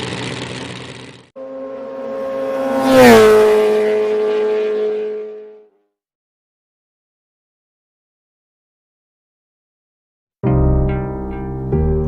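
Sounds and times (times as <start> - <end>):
motorcycle engine idling: 0.0 - 1.3.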